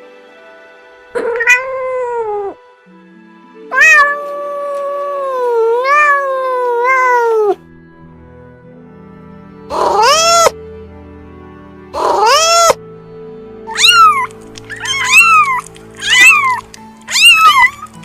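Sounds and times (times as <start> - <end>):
background music: 0.0 - 18.0
cat meowing: 1.2 - 2.6, 3.7 - 7.6, 9.7 - 10.6, 12.0 - 12.8, 13.7 - 18.0.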